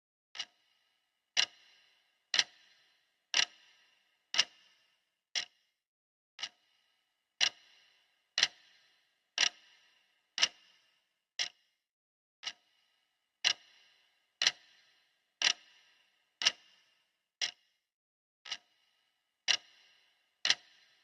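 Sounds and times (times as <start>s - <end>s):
clock ticking: 0.4s - 0.6s, 1.4s - 4.7s, 6.4s - 6.6s, 7.4s - 8.8s, 9.4s - 9.8s, 10.4s - 10.7s, 12.4s - 12.7s, 13.4s - 13.8s, 14.4s - 15.8s, 16.4s - 16.8s, 18.4s - 18.7s, 19.4s - 19.8s, 20.4s - 21.0s.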